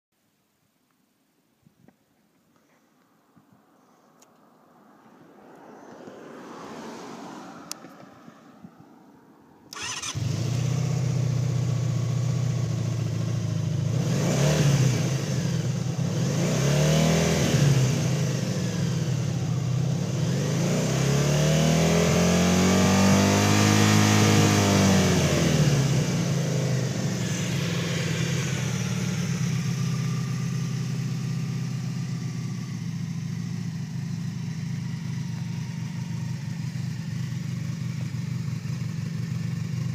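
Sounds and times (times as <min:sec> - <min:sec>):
motorcycle engine idling and revving: 0:05.7 - 0:39.9
starter clicks: 0:09.7 - 0:10.2.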